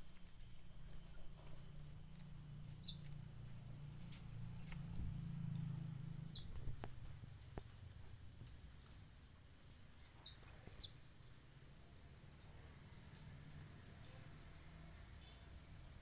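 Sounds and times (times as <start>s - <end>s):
birds calling: 2.7s - 3.1s, 6.2s - 6.6s, 10.2s - 11.0s.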